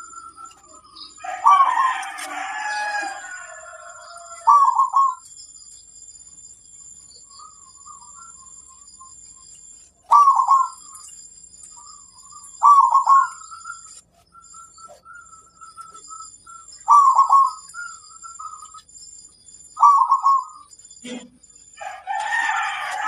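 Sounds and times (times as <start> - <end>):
dove cooing: 0.0 - 5.2, 10.1 - 11.0, 12.6 - 13.8, 16.8 - 18.6, 19.8 - 21.2.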